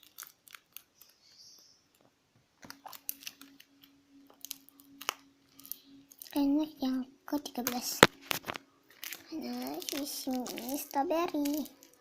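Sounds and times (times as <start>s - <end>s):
low steady hum: 0.0s - 12.0s
paper squishy crinkling and clicking: 0.0s - 12.0s.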